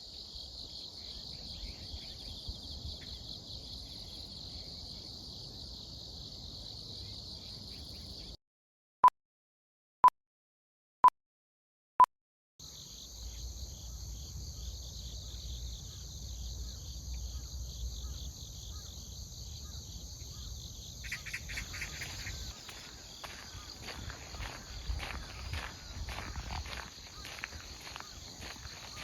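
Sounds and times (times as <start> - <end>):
crickets and insects chirring: 0.0 - 8.4, 12.6 - 29.0
footsteps on path: 21.5 - 29.0.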